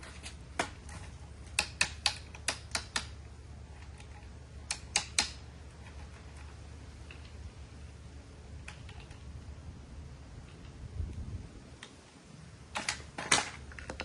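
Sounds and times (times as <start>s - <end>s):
low steady hum: 0.0s - 14.0s
sharp clicks: 4.6s - 5.4s.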